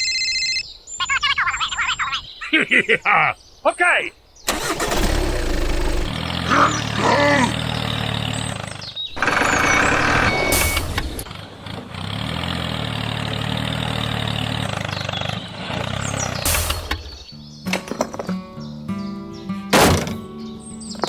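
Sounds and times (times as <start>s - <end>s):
engine idling: 4.5s - 17.3s.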